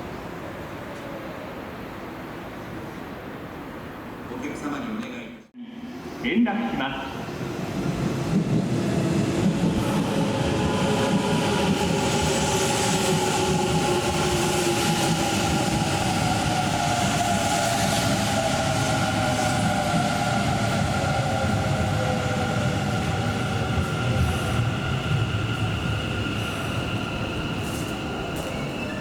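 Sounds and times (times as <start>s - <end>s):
faint steady squeal: 25.2s - 29.0s.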